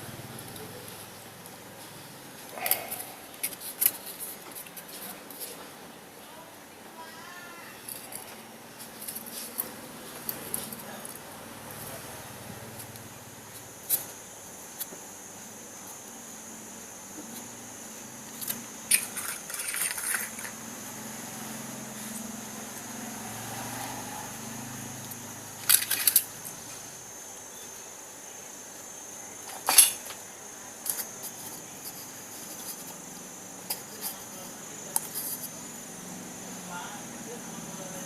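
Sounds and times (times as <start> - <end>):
small metal parts clinking: 18.4 - 20.6, 25.6 - 26.3, 29.5 - 30.1.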